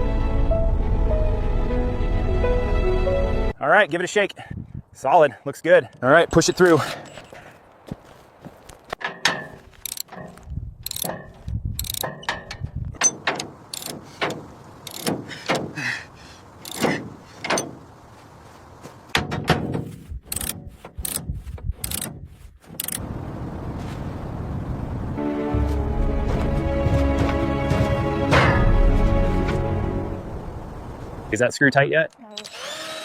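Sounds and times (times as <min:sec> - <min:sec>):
hardware clicking and ratcheting: 0:09.0 - 0:15.6, 0:16.6 - 0:17.7, 0:20.2 - 0:23.0.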